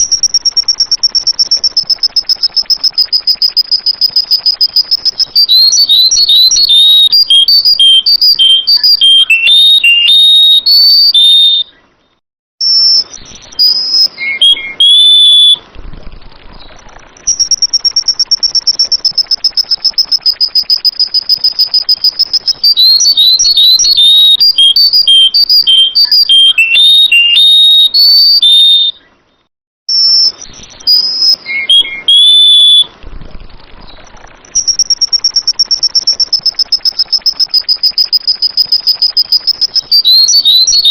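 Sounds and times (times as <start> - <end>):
bird buzzing trill: 0.0 - 10.9, 17.2 - 27.4
bird whistled notes: 0.0 - 11.8, 12.6 - 15.6, 16.6 - 29.1, 29.9 - 33.0, 34.4 - 40.9.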